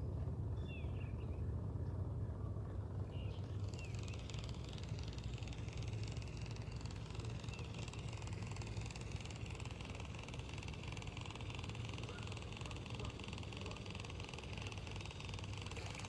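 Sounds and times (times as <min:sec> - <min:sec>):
small electric motor ticking: 0:03.2 - 0:16.0.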